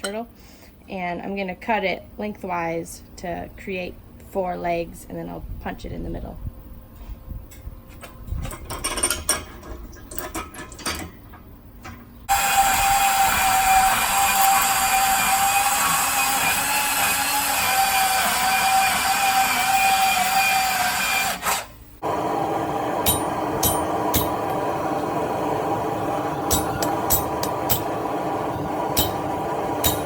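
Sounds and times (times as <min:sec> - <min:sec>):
power tool cutting steel: 0:12.3 - 0:21.7, 0:26.5 - 0:30.0.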